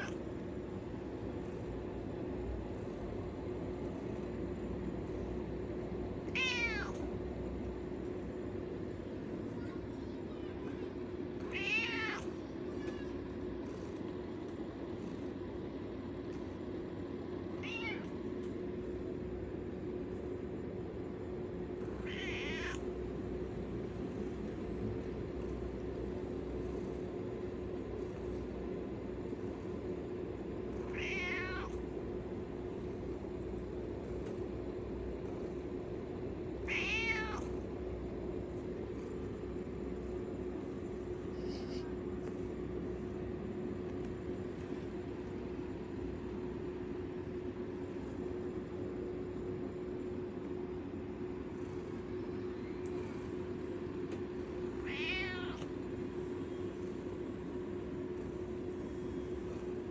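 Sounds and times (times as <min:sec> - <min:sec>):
steady low hum: 0:00.0 - 0:59.9
cat meowing: 0:06.3 - 0:07.0, 0:11.4 - 0:13.2, 0:17.6 - 0:18.1, 0:22.0 - 0:22.8, 0:30.8 - 0:31.8, 0:36.6 - 0:37.5, 0:54.8 - 0:55.7.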